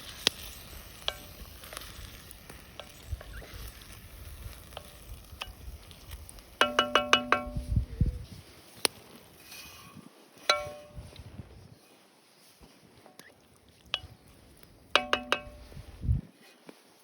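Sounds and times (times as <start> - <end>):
faint sizzle: 0.0 - 11.1
fire crackles: 0.0 - 11.7, 12.5 - 16.3
metal spoon clinking on pot: 6.6 - 7.7, 10.5 - 11.0, 15.0 - 15.6.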